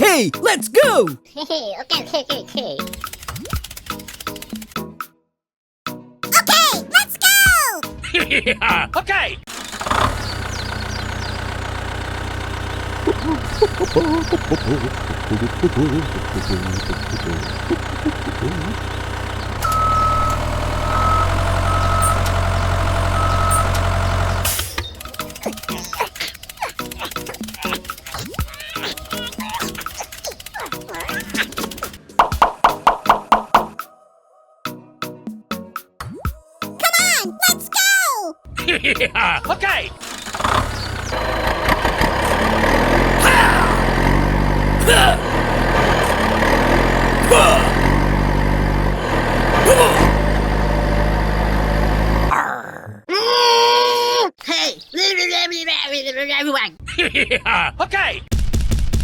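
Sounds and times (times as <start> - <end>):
truck engine idling: 9.5 - 26.6, 39.5 - 52.3.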